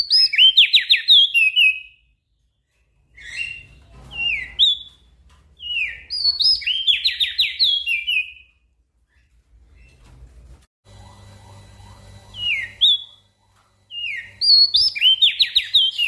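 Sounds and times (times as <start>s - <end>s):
songbird singing: 5.6s - 8.5s, 13.9s - 16.0s.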